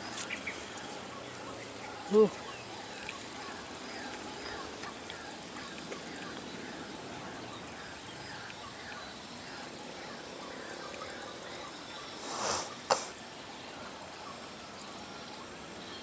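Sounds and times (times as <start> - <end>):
high insect drone: 0.0 - 16.0
sharp snap: 12.4 - 13.2.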